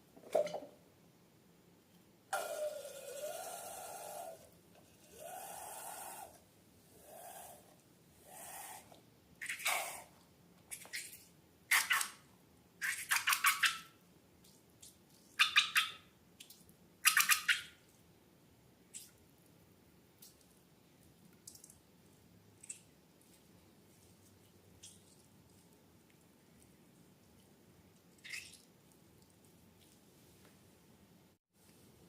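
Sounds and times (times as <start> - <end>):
wet slime squishes: 22.6 - 30.1.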